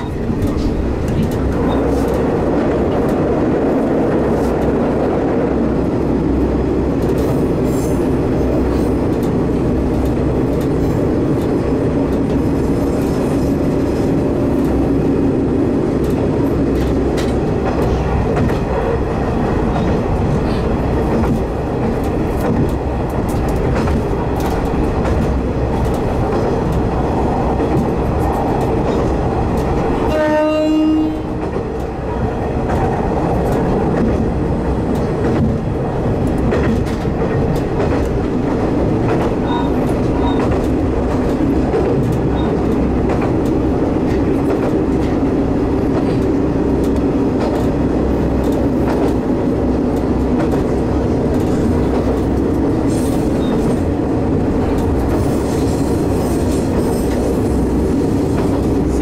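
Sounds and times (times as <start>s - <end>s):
diesel railcar engine and rail rumble: 0.0s - 59.0s
short train horn blast: 30.1s - 31.4s.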